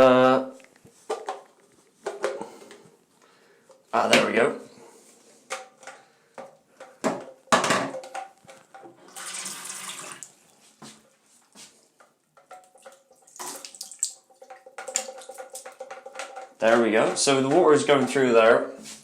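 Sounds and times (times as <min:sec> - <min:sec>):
pipes knocking and clattering: 0:01.1 - 0:02.8, 0:05.5 - 0:09.4, 0:12.0 - 0:19.0
water rushing through pipes: 0:09.0 - 0:10.4.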